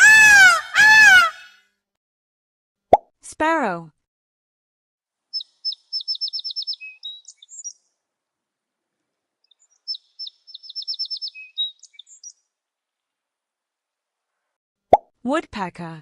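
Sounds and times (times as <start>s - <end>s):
sparrow singing: 5.3s - 7.9s, 9.4s - 12.4s.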